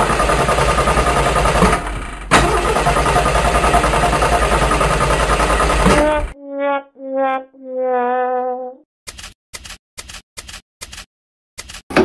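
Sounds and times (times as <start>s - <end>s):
tractor engine chugging: 0.0s - 6.1s.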